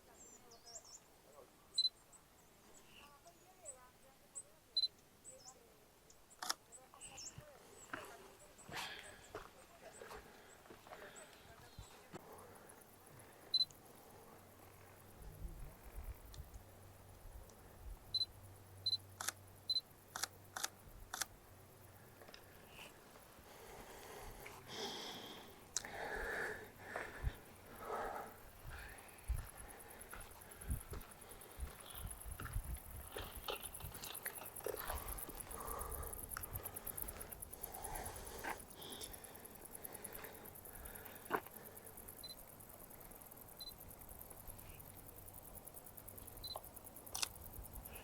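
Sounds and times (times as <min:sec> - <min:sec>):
insects chirping: 0:00.0 - 0:48.0
quiet outdoor ambience: 0:00.0 - 0:48.0
camera focus beeps: 0:01.8 - 0:02.0, 0:04.8 - 0:05.0, 0:06.3 - 0:06.6, 0:13.5 - 0:13.7, 0:18.1 - 0:21.3, 0:42.2 - 0:42.4, 0:43.6 - 0:43.8, 0:46.4 - 0:47.3
camera shutter clicks: 0:47.1 - 0:47.4.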